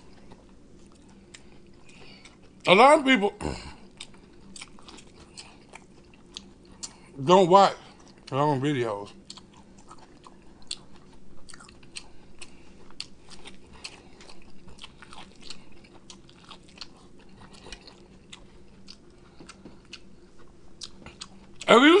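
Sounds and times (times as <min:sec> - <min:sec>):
person biting and chewing corn: 0:03.8 - 0:07.1, 0:09.1 - 0:21.7.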